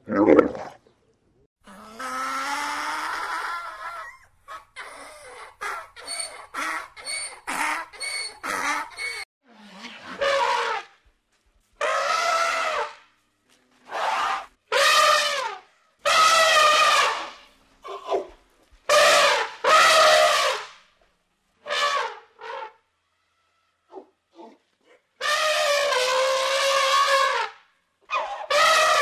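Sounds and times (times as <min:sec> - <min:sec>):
elephant trumpeting: 0:28.1 - 0:29.0.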